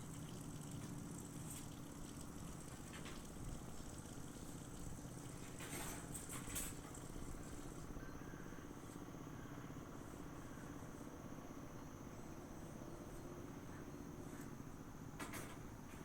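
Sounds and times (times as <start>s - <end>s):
faint rural ambience: 0.0s - 16.0s
insects trilling: 0.0s - 16.0s.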